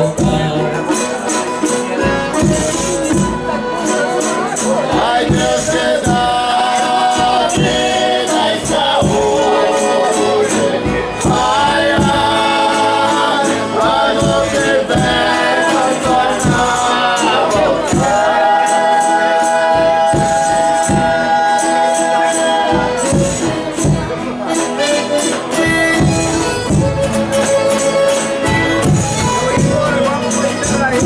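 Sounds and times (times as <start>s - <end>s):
group singing in harmony: 0.0s - 29.9s
percussion beat: 0.0s - 31.0s.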